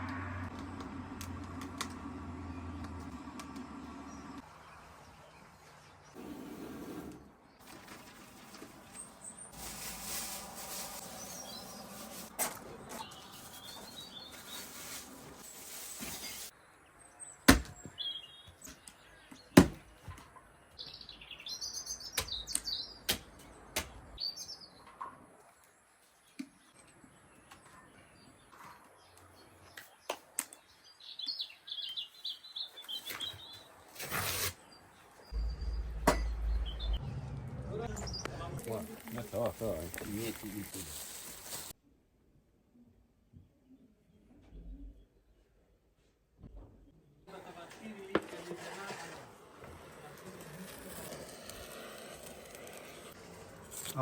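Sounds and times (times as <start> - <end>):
high bird chirps: 35.3 - 37.2
low rumble: 35.4 - 38.6.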